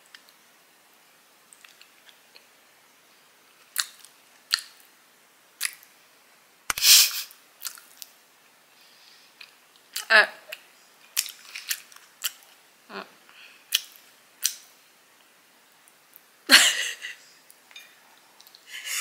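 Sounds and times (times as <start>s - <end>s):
chewing sticky sweet: 1.5s - 2.5s, 5.6s - 5.9s, 7.6s - 8.1s, 9.4s - 12.6s
wet mouth clicks and smacks: 5.6s - 5.8s, 13.7s - 14.6s.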